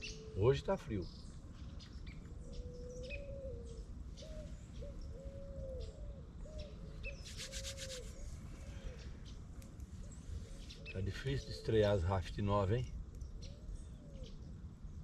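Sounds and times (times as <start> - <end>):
low whistled bird notes: 6.6 - 9.1
rapid rattling bird trill: 7.0 - 8.3.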